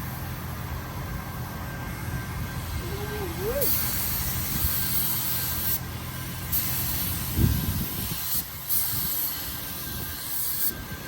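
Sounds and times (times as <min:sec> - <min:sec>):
paint spray gun hissing: 0:03.3 - 0:10.7.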